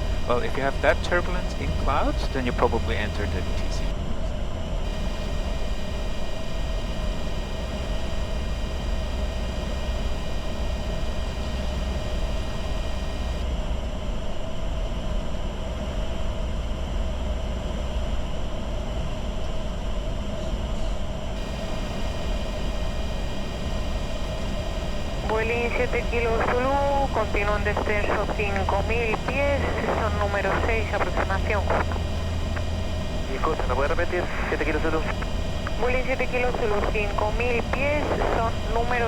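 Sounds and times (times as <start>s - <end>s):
jet engine hum: 0.0s - 4.0s, 21.4s - 39.0s.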